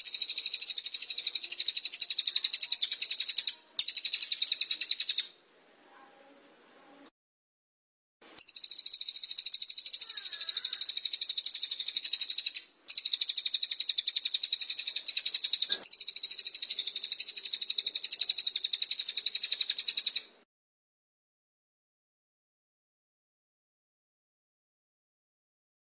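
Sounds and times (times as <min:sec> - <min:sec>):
songbird trilling: 0:00.0 - 0:05.4, 0:08.4 - 0:20.3.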